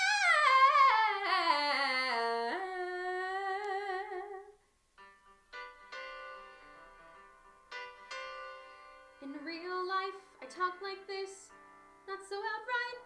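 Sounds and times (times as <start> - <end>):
woman singing wordless vocal run: 0.0 - 4.6.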